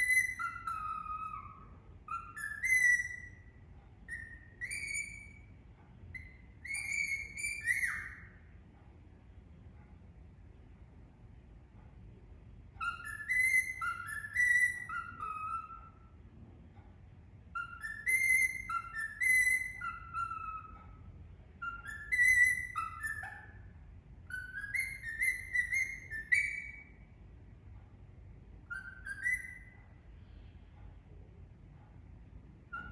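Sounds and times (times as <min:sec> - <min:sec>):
parakeet whistling a tune: 0:00.0 - 0:05.5, 0:06.1 - 0:08.4, 0:12.8 - 0:16.1, 0:17.5 - 0:21.0, 0:21.6 - 0:27.0, 0:28.6 - 0:29.9, 0:32.7 - 0:32.9.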